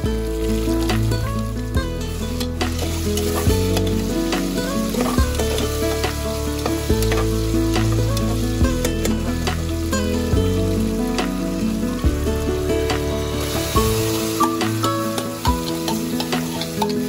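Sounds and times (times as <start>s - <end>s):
vegetables sizzling in hot oil: 0.0s - 17.0s
metal spoon clinking and scraping pot: 2.1s - 9.3s, 13.4s - 17.0s.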